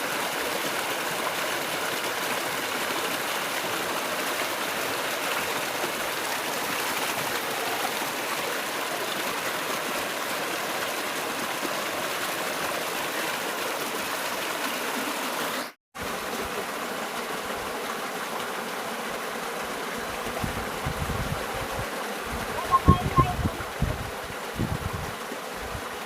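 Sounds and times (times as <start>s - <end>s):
river water rushing: 0.0s - 15.8s.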